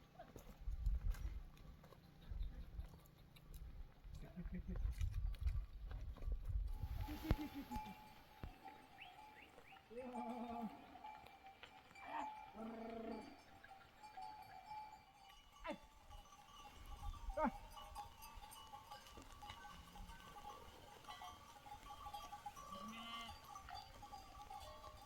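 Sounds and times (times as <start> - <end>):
sheep bleating: 9.8 - 11.2, 12.0 - 13.5, 22.7 - 23.5.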